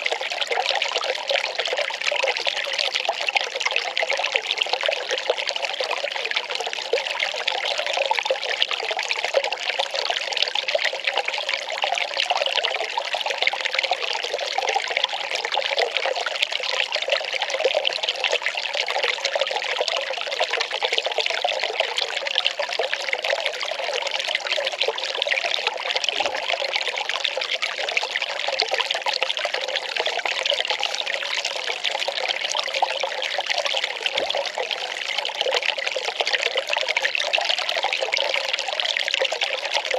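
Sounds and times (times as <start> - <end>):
water pouring and trickling: 0.0 - 39.9.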